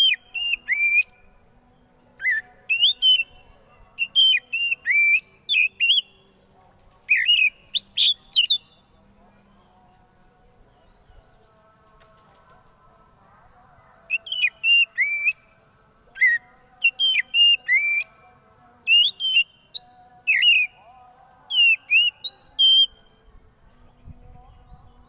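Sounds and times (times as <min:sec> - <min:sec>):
bird loud whistled calls: 0:00.0 - 0:01.3, 0:02.2 - 0:03.3, 0:04.0 - 0:06.2, 0:07.1 - 0:08.7, 0:14.1 - 0:15.5, 0:16.2 - 0:18.2, 0:18.9 - 0:20.8, 0:21.5 - 0:23.0.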